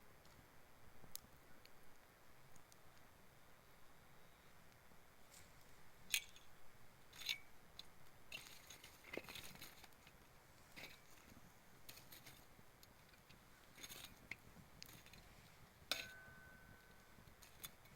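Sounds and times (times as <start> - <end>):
campfire crackling: 6.8 - 17.9.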